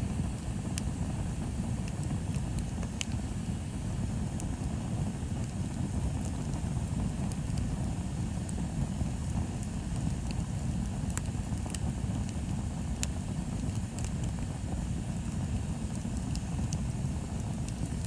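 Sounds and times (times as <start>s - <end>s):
burning wood crackling and popping: 0.0s - 18.0s
low fire rumble: 0.0s - 18.0s.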